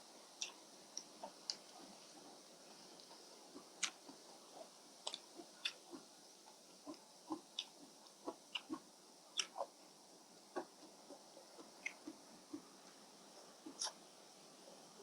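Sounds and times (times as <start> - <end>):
person chewing noodles: 5.0 - 6.1, 6.9 - 8.8.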